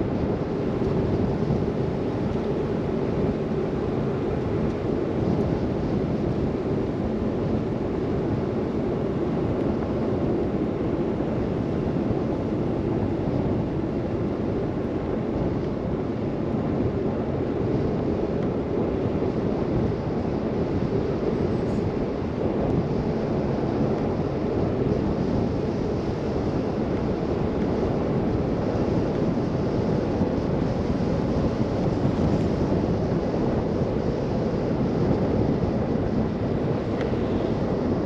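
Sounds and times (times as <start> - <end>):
wind: 0.0 - 38.0.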